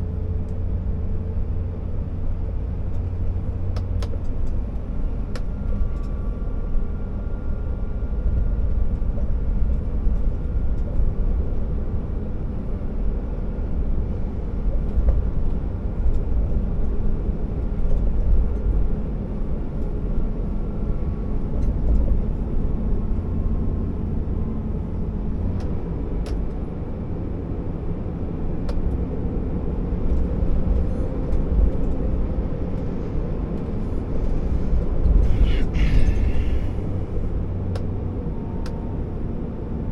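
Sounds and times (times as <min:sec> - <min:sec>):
truck diesel engine rumbling: 0:29.3 - 0:39.0.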